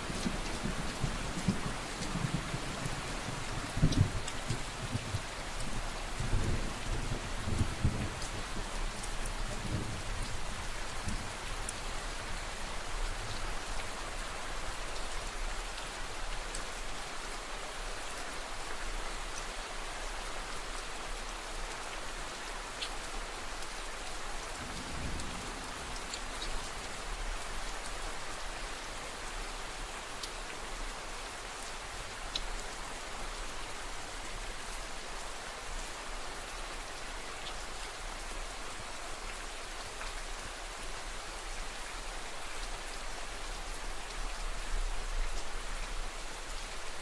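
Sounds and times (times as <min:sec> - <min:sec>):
steady rain falling: 0:00.0 - 0:47.0
distant thunder rumble: 0:24.6 - 0:26.2.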